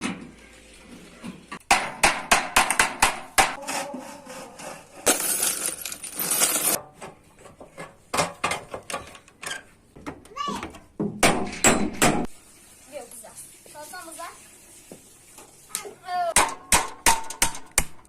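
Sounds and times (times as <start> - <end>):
hammer striking metal pan: 16.4 - 18.0.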